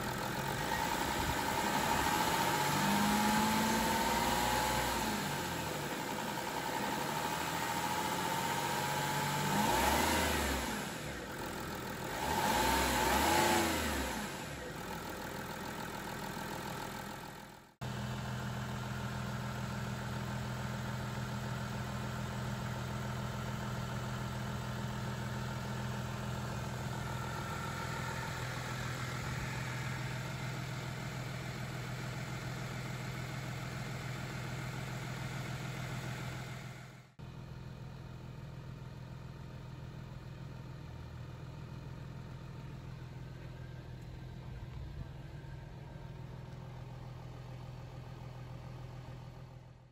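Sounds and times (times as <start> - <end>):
diesel engine revving: 0.0 - 18.2
diesel engine idling: 13.7 - 49.9.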